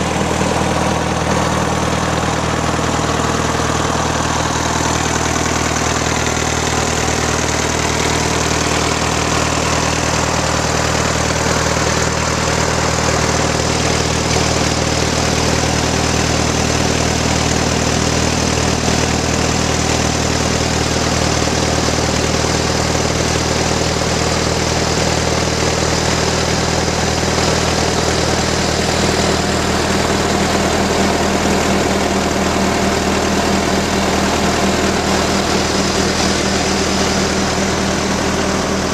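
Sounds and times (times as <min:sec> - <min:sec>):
tractor engine idling: 0:00.0 - 0:38.9.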